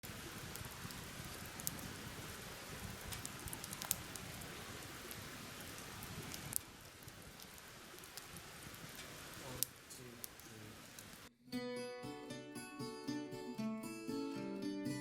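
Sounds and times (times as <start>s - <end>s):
steady rain falling: 0.0s - 11.3s.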